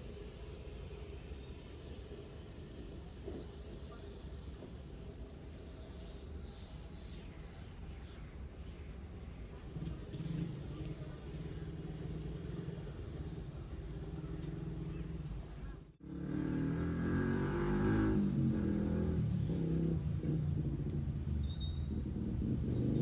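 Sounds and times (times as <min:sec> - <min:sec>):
small motorcycle engines running: 0:09.4 - 0:23.0.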